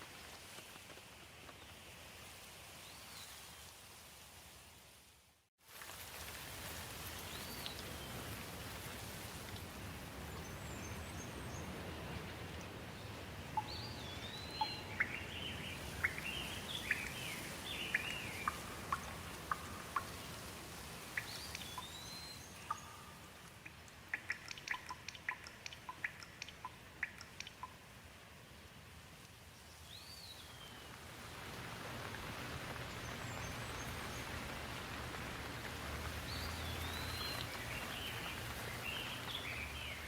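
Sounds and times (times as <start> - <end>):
steady rain: 0.0 - 40.0
birds chirping: 13.0 - 20.4, 21.2 - 27.8, 36.2 - 40.0
quick sharp ticks: 23.4 - 27.8.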